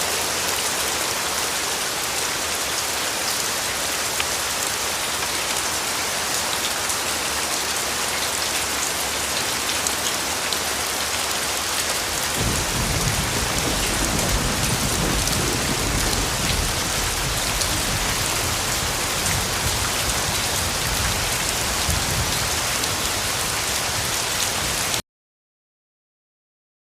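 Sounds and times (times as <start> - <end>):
heavy rain: 0.0 - 25.0
thunder rumbling: 12.4 - 22.7.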